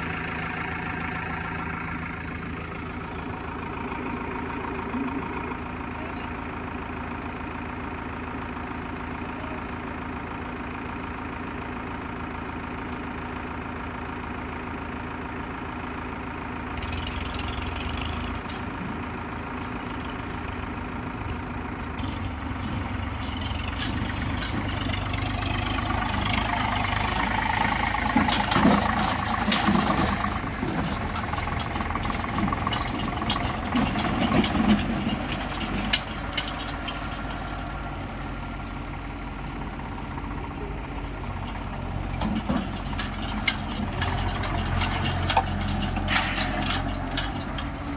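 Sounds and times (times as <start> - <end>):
diesel engine: 0.0 - 47.9
sharp clanks and knocks: 21.8 - 37.6, 41.4 - 47.9.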